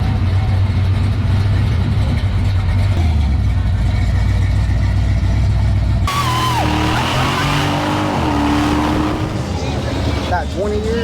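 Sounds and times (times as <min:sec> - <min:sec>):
engine rumbling: 0:00.0 - 0:11.0
high falling squeal: 0:06.1 - 0:09.4.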